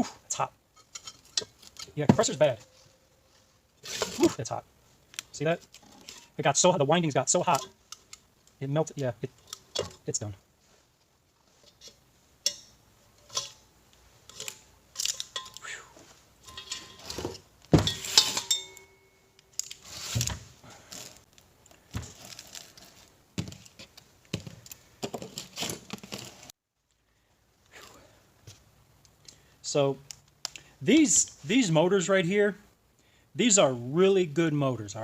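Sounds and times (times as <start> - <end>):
metal parts clinking and clanking: 0.8 - 3.0, 7.3 - 8.2, 11.6 - 15.6, 16.4 - 19.8.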